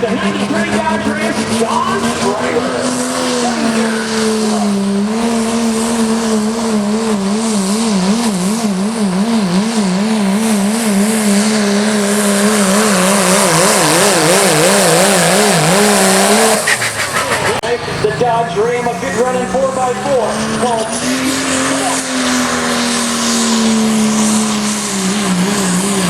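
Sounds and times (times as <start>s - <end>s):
diesel truck engine at full throttle: 0.0s - 26.0s.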